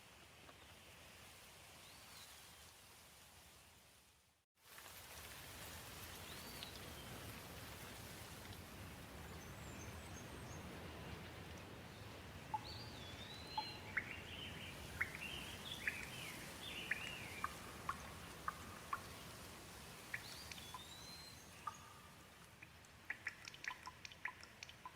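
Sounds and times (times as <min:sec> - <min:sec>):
gentle rain falling: 0:00.0 - 0:24.9
birds chirping: 0:12.5 - 0:19.2.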